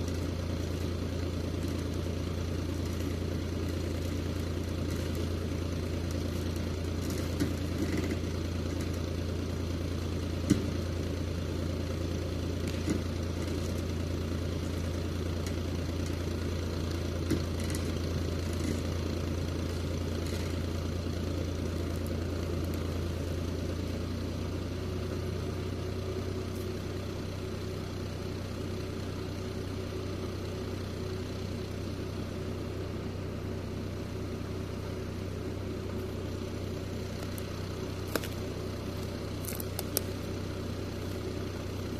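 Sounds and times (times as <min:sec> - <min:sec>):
tractor diesel engine running: 0:00.0 - 0:41.9
sharp engine knocks: 0:10.4 - 0:10.9.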